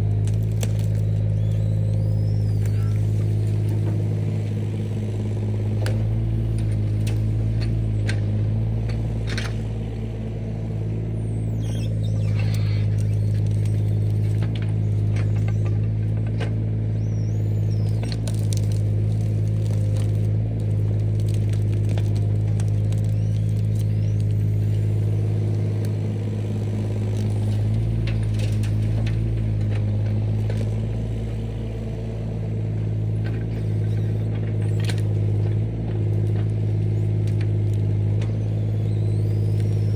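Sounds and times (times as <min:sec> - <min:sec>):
diesel engine at high revs: 0:00.0 - 0:39.9
clicks scrapes and cracks: 0:00.2 - 0:01.3, 0:11.9 - 0:16.6, 0:17.7 - 0:26.0, 0:26.8 - 0:30.9, 0:33.2 - 0:38.4.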